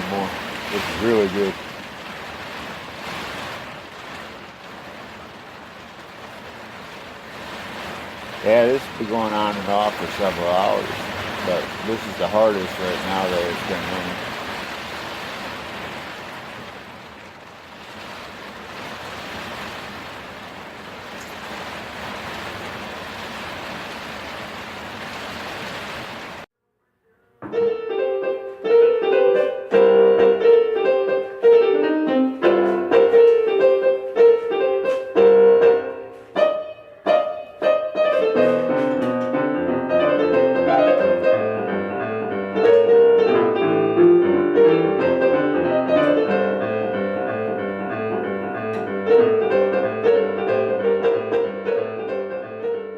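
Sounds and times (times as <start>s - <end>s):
piano music: 8.4s - 14.2s, 27.4s - 52.9s.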